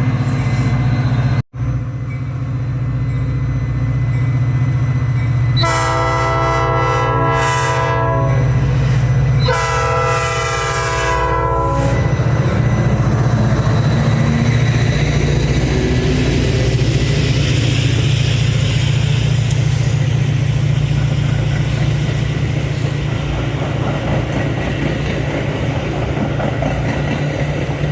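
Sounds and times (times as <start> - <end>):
train rumbling: 0.0 - 27.9
train horn blasts: 5.6 - 8.6, 9.4 - 12.2.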